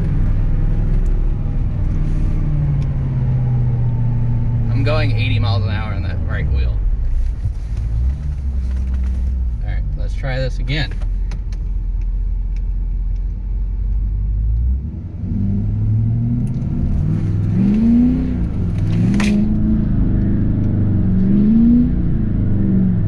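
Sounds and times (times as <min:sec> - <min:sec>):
diesel truck engine revving: 0:00.0 - 0:07.0, 0:14.3 - 0:23.0.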